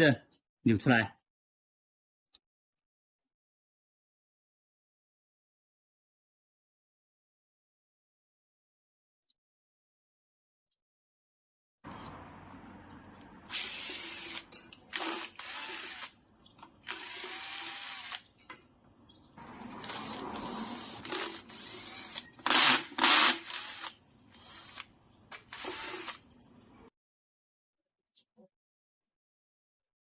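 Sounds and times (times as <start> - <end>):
electric screwdriver running: 13.5 - 16.2, 16.8 - 18.2, 19.8 - 26.2.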